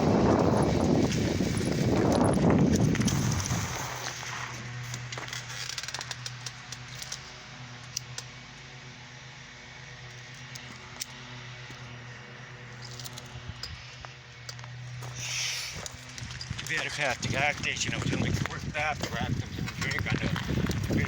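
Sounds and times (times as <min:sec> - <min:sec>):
steady low hum: 0:00.0 - 0:05.5
bicycle rolling: 0:00.0 - 0:08.2, 0:09.8 - 0:21.0
bike clicks and rattles: 0:00.0 - 0:08.8, 0:09.8 - 0:21.0.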